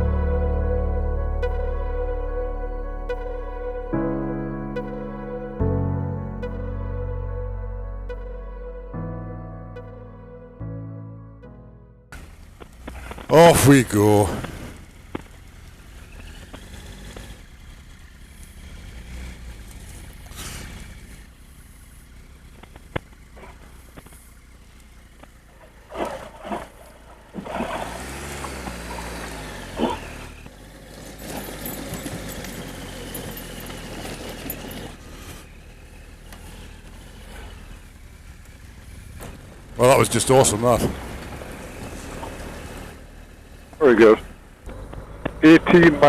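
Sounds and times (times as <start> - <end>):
motorcycle engine running: 12.1 - 46.0.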